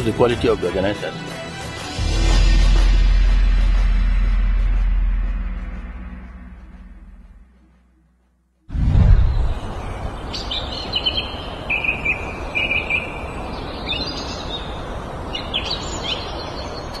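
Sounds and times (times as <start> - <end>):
low rumble: 2.0 - 10.3
outdoor background noise: 2.0 - 17.0
birds chirping: 8.9 - 17.0.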